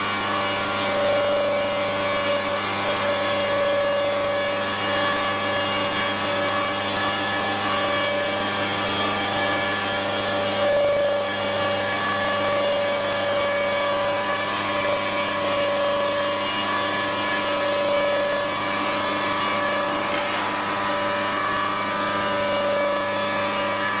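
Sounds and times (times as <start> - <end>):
constant machine noise: 0.0 - 24.0
machine spindle whine: 0.0 - 24.0.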